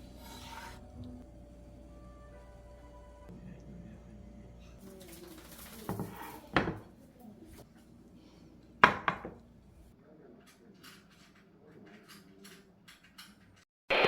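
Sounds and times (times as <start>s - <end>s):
dishes and utensils clinking: 4.8s - 6.9s.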